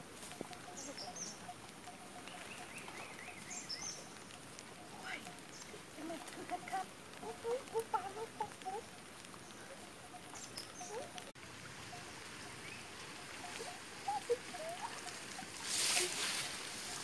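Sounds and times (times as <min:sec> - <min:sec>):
faint outdoor background: 0:00.0 - 0:17.0
clucking bird calls: 0:05.6 - 0:08.9, 0:09.5 - 0:11.3, 0:12.6 - 0:16.2.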